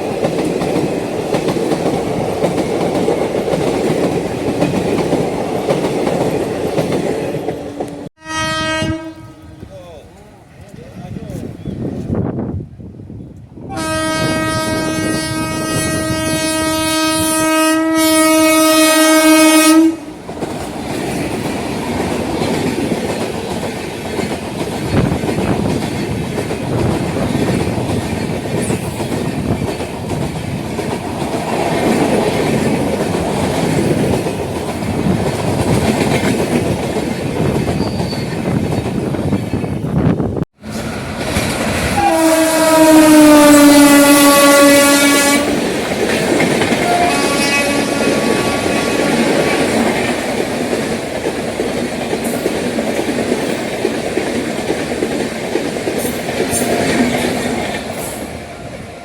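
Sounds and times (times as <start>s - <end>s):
train rumbling and wheels clattering: 0.0s - 59.0s
train horn long blast: 8.2s - 9.7s, 13.7s - 20.1s, 41.9s - 45.6s, 46.8s - 49.6s.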